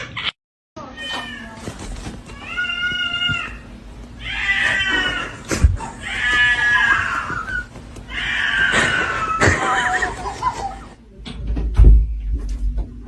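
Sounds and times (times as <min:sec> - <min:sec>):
cat meowing: 0:02.3 - 0:09.4.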